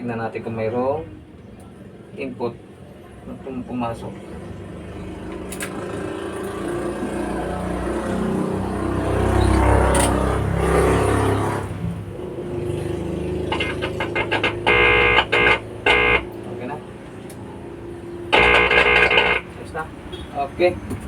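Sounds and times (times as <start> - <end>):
short choppy repeated tones: 13.5 - 16.3.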